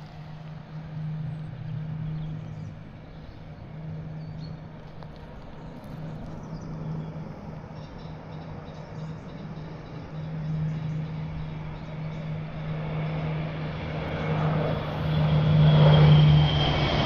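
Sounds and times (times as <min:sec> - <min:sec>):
propeller aircraft flying past: 0:00.0 - 0:17.0.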